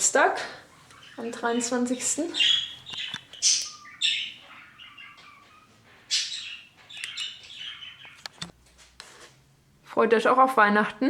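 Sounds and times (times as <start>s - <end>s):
small birds chirping: 0.0s - 8.6s.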